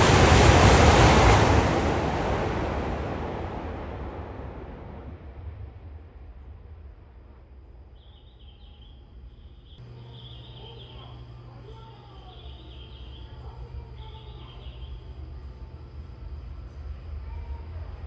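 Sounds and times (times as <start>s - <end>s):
steady low hum: 0.0s - 18.0s
small birds chirping: 7.9s - 15.4s.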